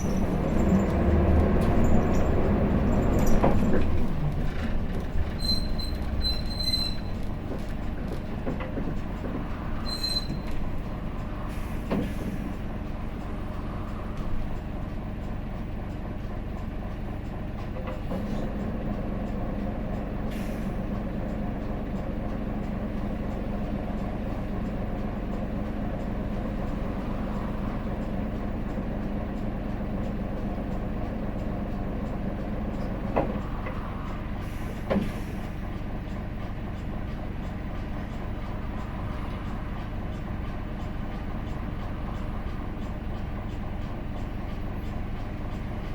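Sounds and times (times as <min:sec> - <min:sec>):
bus diesel engine drone: 0:00.0 - 0:45.9
short air hisses: 0:34.4 - 0:35.6.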